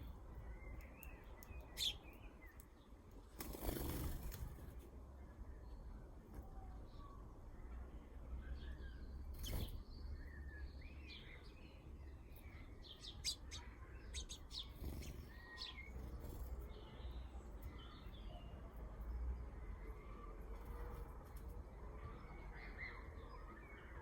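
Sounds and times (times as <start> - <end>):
small birds chirping: 0.0 - 4.8, 8.4 - 19.2.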